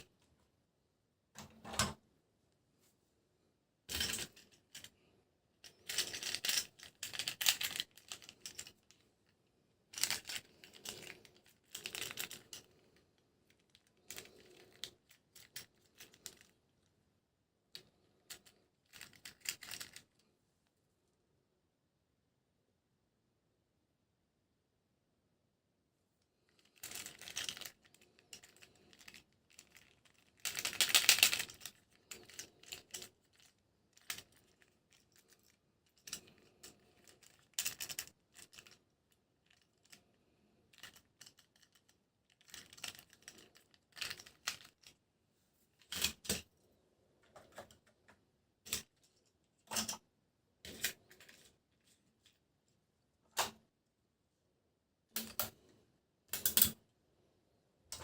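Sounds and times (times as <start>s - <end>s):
toy packaging being opened: 26.5s - 35.6s, 40.7s - 45.0s.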